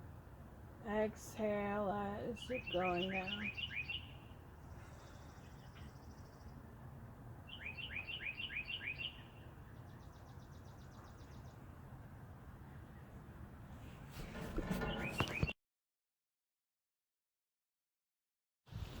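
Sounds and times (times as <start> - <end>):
birds singing and trilling: 1.0 - 13.5, 14.7 - 15.6.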